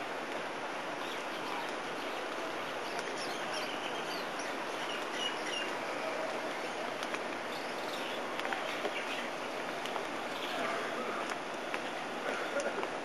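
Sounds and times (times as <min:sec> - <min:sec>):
steady outdoor background hiss: 0:00.0 - 0:13.0.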